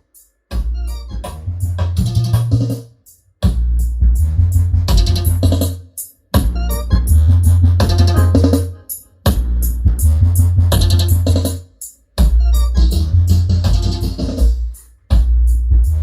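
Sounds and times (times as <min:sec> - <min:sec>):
drum machine beat: 0:00.0 - 0:16.0
heavy bass notes: 0:00.6 - 0:02.8, 0:03.4 - 0:05.8, 0:06.4 - 0:11.6, 0:12.2 - 0:16.0
synthesizer chords: 0:06.4 - 0:11.5.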